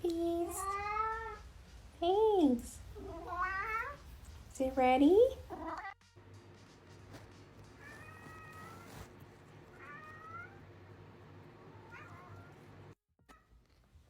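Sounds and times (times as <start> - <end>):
cat meowing: 0.4 - 1.4, 3.0 - 4.0, 5.5 - 6.0, 7.8 - 9.1, 9.7 - 10.7, 11.6 - 12.7.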